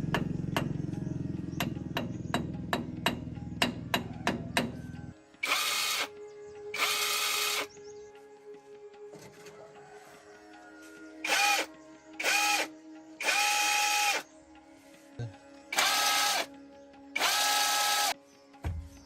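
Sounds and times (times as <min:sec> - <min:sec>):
power drill whining: 0:05.4 - 0:06.1, 0:06.8 - 0:07.7, 0:11.2 - 0:14.2, 0:15.7 - 0:16.5, 0:17.2 - 0:18.2.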